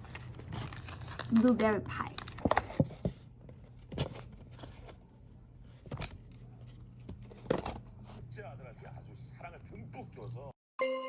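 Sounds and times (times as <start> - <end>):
paper packaging rustling: 0.0 - 5.1.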